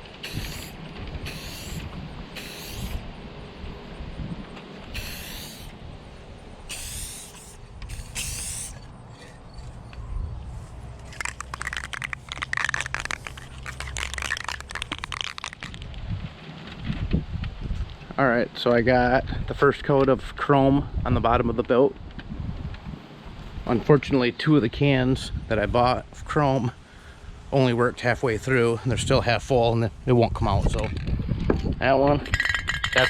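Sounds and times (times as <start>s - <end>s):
aerosol can hissing: 0.0s - 3.0s, 4.9s - 5.8s, 6.6s - 8.8s, 11.0s - 15.8s
aerosol can rattling: 0.0s - 3.0s, 4.8s - 5.7s, 6.7s - 8.8s, 11.0s - 16.0s
wind rumbling on microphone: 0.0s - 33.0s.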